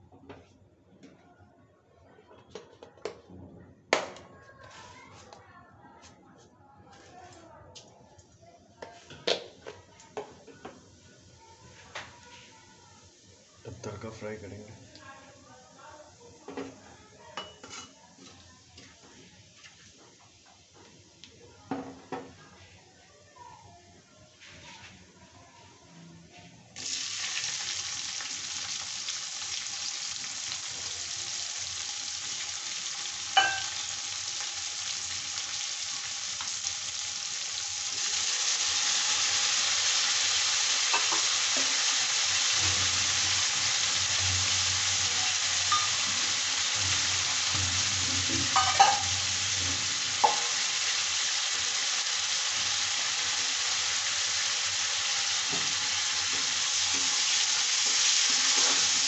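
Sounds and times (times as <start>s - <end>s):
onions sizzling in hot oil: 10.7s - 21.3s, 26.8s - 59.0s.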